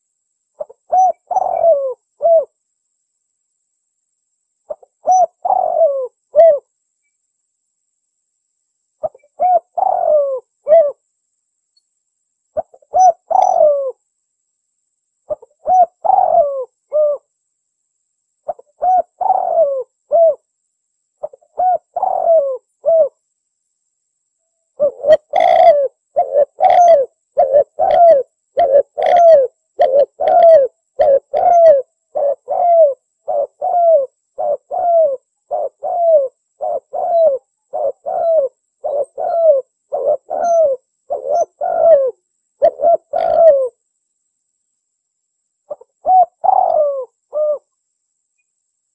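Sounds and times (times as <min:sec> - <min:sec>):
dove cooing: 0:00.6 - 0:02.6, 0:04.7 - 0:06.7, 0:09.0 - 0:11.0, 0:12.6 - 0:14.0, 0:15.3 - 0:17.3, 0:18.5 - 0:20.4, 0:21.2 - 0:23.2, 0:24.8 - 0:43.8, 0:45.7 - 0:47.7.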